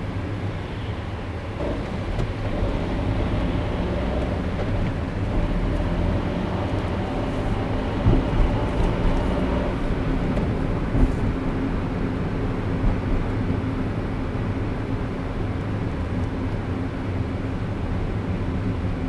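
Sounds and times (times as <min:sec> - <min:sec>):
tyre and engine rumble: 0:01.6 - 0:15.0.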